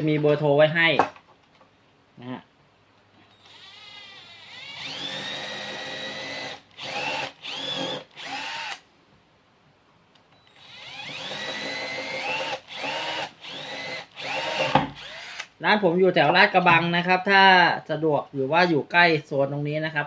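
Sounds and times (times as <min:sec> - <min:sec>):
power drill whining: 0:03.3 - 0:08.8, 0:10.4 - 0:15.5.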